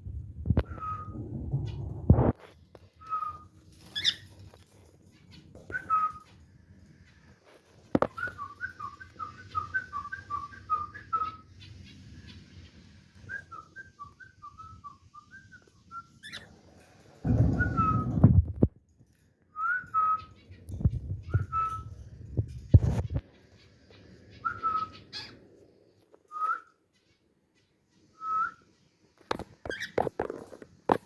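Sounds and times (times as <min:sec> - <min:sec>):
cockatiel whistling: 0:08.1 - 0:11.4, 0:13.2 - 0:16.5, 0:24.4 - 0:25.4.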